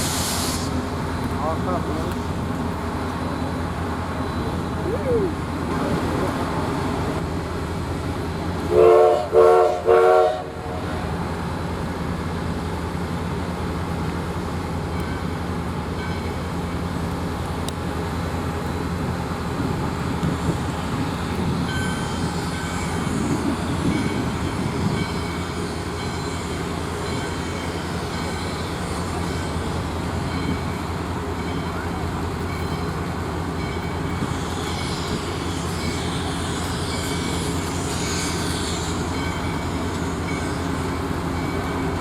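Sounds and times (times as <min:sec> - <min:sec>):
low rumble of train moving: 0:00.0 - 0:42.0
steam whistle blasts: 0:08.7 - 0:10.6.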